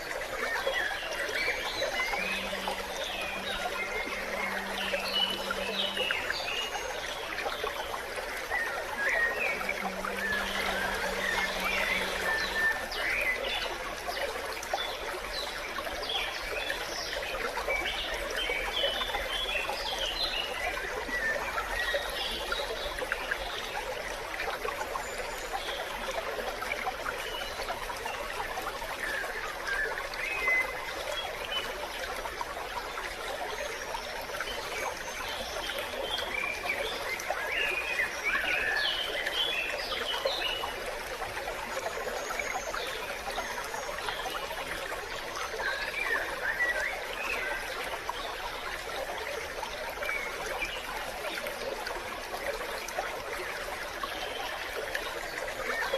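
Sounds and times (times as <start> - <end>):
stream babbling: 0.0 - 55.9.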